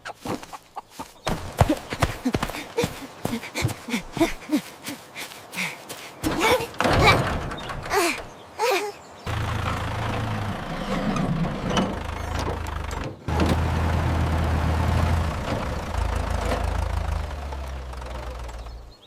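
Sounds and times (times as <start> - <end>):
engine running with low hum: 9.3 - 19.0.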